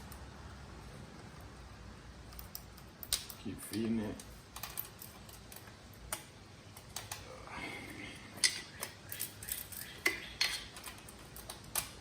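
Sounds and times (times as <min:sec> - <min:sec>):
metal chain clicking and rattling: 0:04.5 - 0:05.7, 0:08.3 - 0:12.0.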